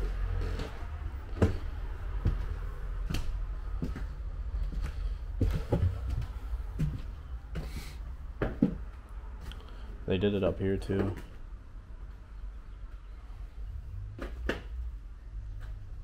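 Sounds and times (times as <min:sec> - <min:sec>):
footsteps and knocks: 0:00.0 - 0:09.6, 0:10.8 - 0:11.4
steady low rumble: 0:00.0 - 0:16.0.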